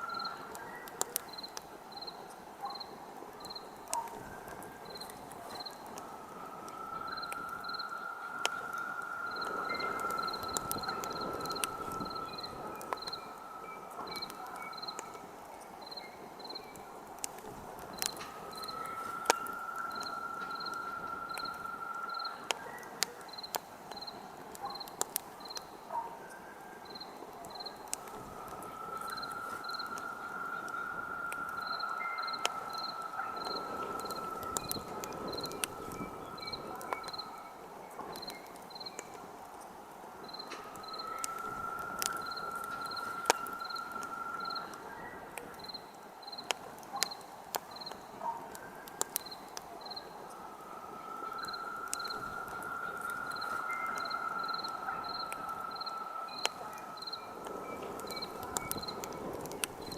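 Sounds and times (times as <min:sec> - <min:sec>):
campfire crackling: 0:00.0 - 0:59.9
crickets chirping: 0:00.0 - 0:59.9
high insect trill: 0:49.2 - 0:59.9.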